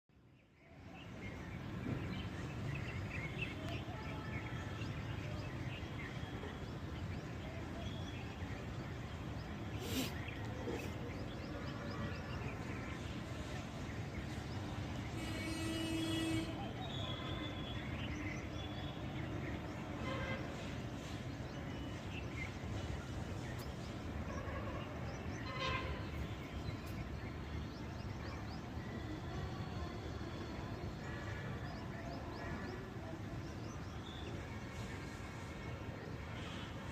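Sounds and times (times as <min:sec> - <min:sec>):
birds chirping: 0:00.8 - 0:36.9
brief hiss: 0:09.8 - 0:10.6.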